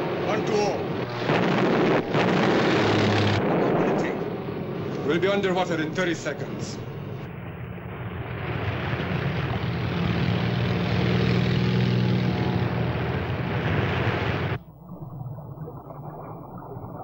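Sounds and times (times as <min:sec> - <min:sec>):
low rumble: 0:00.0 - 0:10.5
heavy rushing noise: 0:00.0 - 0:14.6
propeller aircraft engines droning: 0:00.0 - 0:14.8.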